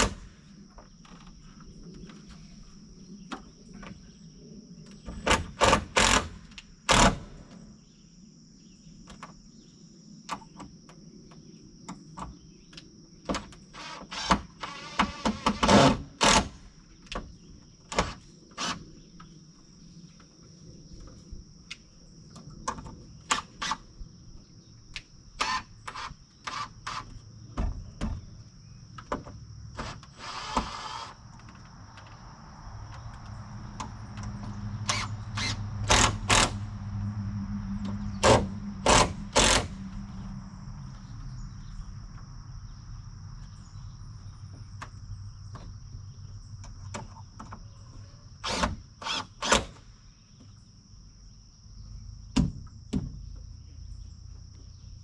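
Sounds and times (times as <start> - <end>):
hammer driving nails: 0.0 - 0.3, 5.3 - 7.4, 14.2 - 16.6, 34.9 - 36.6, 38.2 - 39.8, 48.4 - 49.8
crickets chirring: 0.0 - 55.0
low hum: 31.7 - 46.6.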